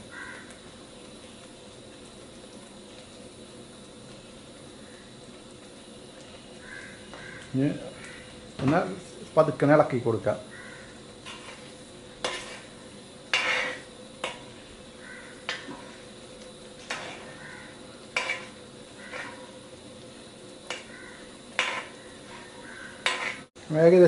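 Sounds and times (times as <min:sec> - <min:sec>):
gravy sizzling: 0:00.0 - 0:24.0
ladle scraping a metal pan: 0:11.2 - 0:14.5, 0:16.8 - 0:17.4, 0:18.1 - 0:19.5, 0:21.5 - 0:23.5.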